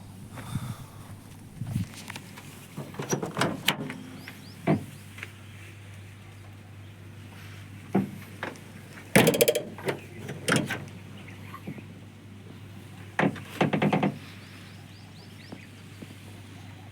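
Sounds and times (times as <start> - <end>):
steady low hum: 0.0 - 16.9
rattling clatter of rapid clicks: 9.1 - 10.8
sharp knocks: 9.2 - 9.9.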